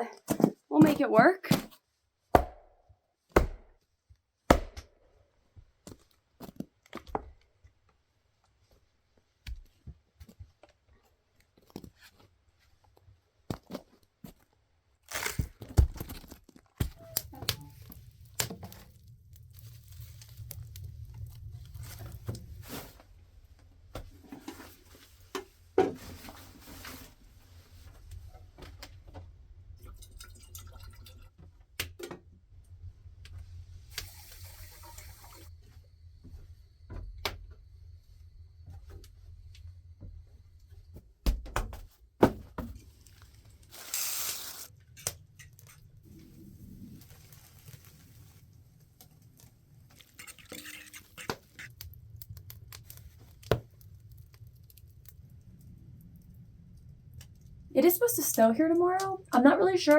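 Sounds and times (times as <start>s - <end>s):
axe splitting log: 2.4s - 2.7s, 3.4s - 3.7s, 4.5s - 4.9s
steady low rumble: 17.8s - 24.3s.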